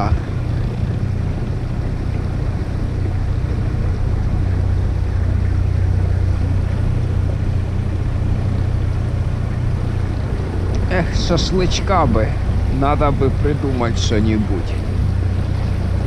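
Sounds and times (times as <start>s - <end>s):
outboard motor droning: 0.0s - 16.0s.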